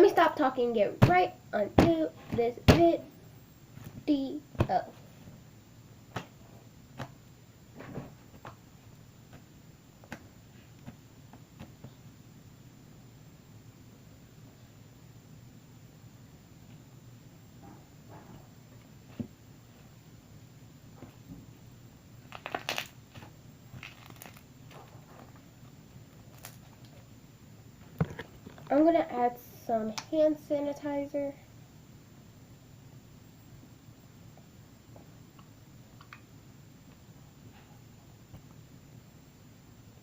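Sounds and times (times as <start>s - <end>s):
crunchy slime crackling: 22.2s - 25.0s, 26.2s - 27.0s.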